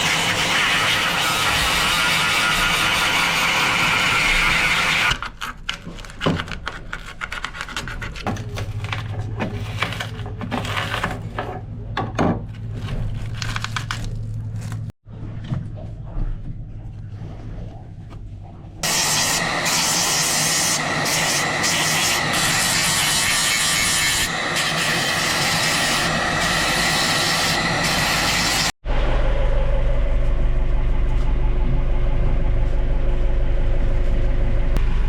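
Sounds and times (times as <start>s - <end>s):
low hum: 28.8s - 35.0s.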